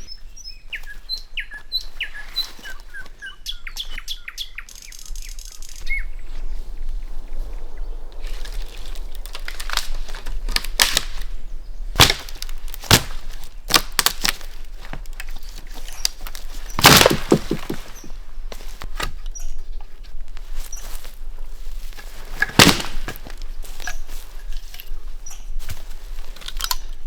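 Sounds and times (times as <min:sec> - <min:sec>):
dry wood cracking and snapping: 0:08.0 - 0:27.0.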